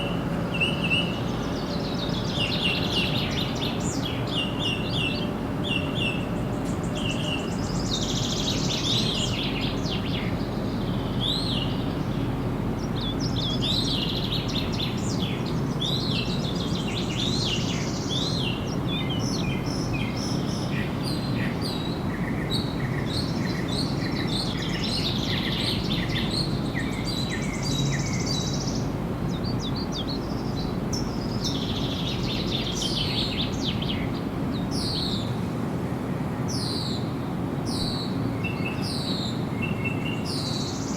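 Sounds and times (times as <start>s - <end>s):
birds singing and chirping: 0.0s - 35.4s, 37.7s - 40.9s.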